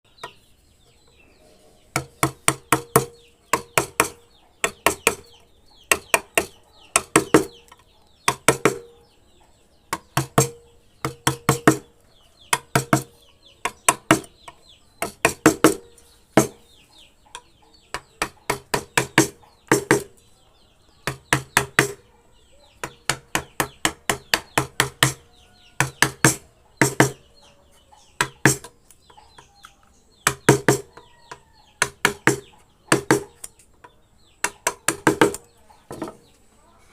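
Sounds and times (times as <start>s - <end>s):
faint bird chirps: 0.1s - 36.9s
hand tool knocking on wood: 2.0s - 5.3s, 5.9s - 7.6s, 8.3s - 8.9s, 9.9s - 11.9s, 12.5s - 14.3s, 15.0s - 16.6s, 17.9s - 20.1s, 21.0s - 22.0s, 22.8s - 25.2s, 25.8s - 27.2s, 28.2s - 28.7s, 30.2s - 33.4s, 34.4s - 36.2s.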